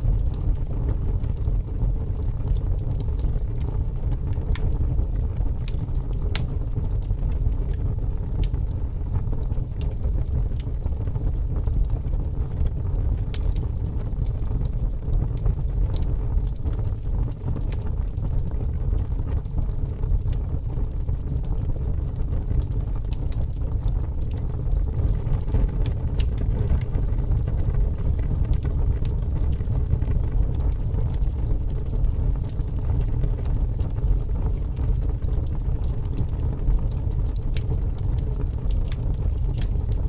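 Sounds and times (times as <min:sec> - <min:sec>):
fire crackling and popping: 0:00.0 - 0:40.0.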